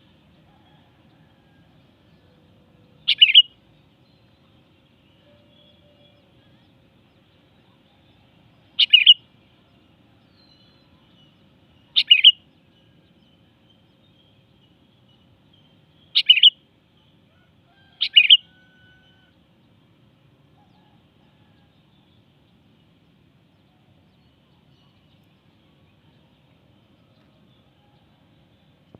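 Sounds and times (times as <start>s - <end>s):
bird calling: 3.0s - 3.5s, 8.8s - 9.2s, 11.9s - 12.4s, 16.1s - 16.6s, 17.8s - 19.3s.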